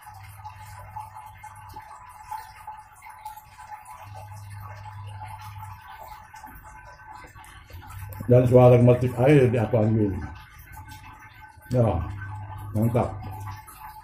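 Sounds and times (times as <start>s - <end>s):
light rain pattering: 0.0s - 14.0s
water trickling in aquarium: 0.0s - 14.0s
low hum: 3.2s - 14.0s.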